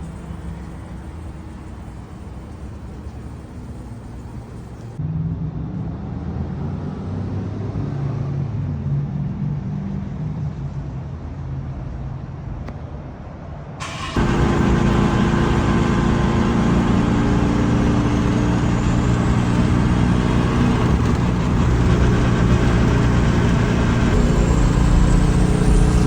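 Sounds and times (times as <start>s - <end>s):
car engine running: 0.0s - 5.0s, 13.8s - 26.0s.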